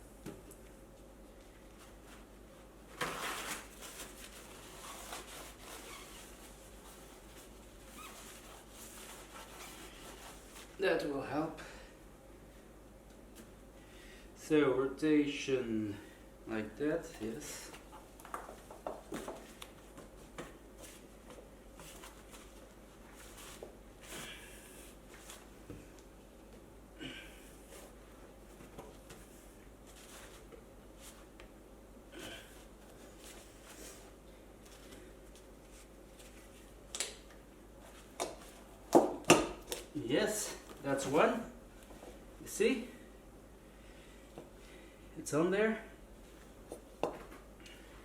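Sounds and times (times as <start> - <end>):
rubbing and handling of tyre: 3.0 - 10.7.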